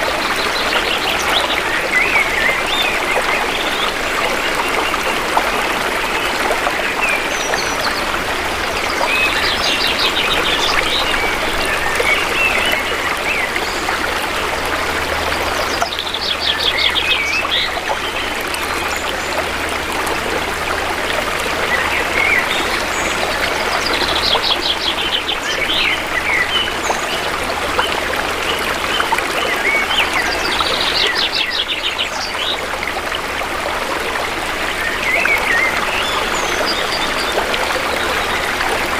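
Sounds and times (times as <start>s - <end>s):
birds singing: 0.0s - 20.1s, 21.5s - 32.8s, 34.6s - 38.7s
river water flowing: 0.0s - 38.9s.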